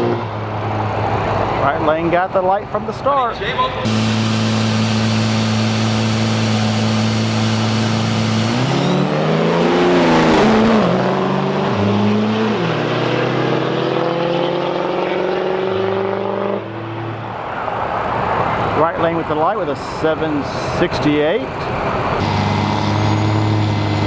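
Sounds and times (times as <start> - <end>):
truck engines revving: 0.0 - 24.0
high turbo whistle: 3.9 - 11.6.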